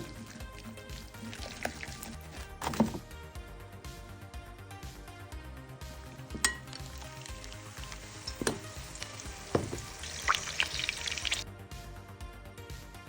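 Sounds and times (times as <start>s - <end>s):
patties sizzling in hot oil: 0.0s - 2.4s, 6.0s - 11.4s.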